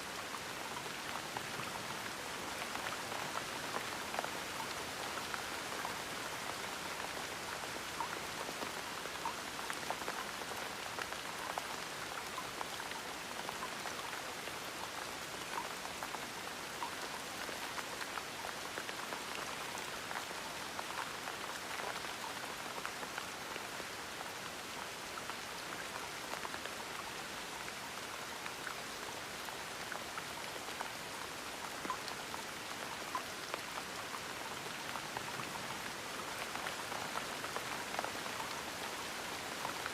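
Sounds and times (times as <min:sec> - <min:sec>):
gentle rain hiss: 0:00.0 - 0:39.9
raindrops ticking on a surface: 0:00.1 - 0:39.9.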